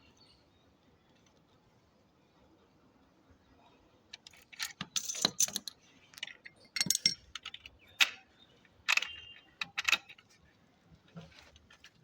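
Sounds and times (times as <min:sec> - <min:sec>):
metal tools clinking and clattering: 0:04.6 - 0:05.7, 0:06.4 - 0:07.6.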